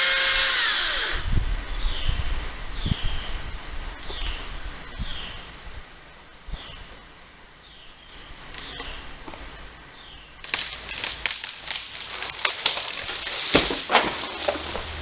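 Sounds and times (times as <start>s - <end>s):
branches snapping and crashing: 10.4s - 15.0s.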